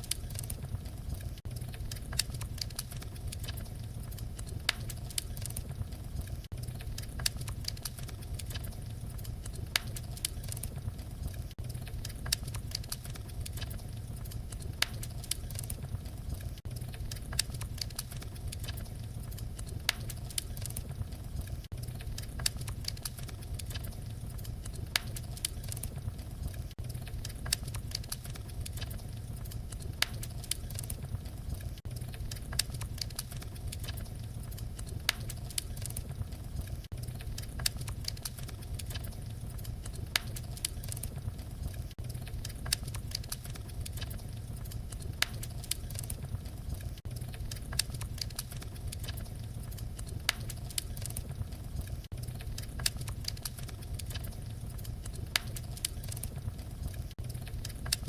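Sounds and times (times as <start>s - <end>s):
fire crackling: 0.0s - 58.0s.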